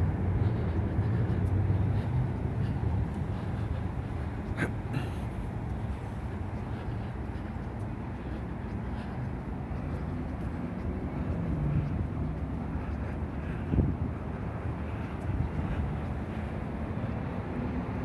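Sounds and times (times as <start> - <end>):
street traffic rumble: 0.0 - 18.0
wind on microphone: 13.5 - 14.4.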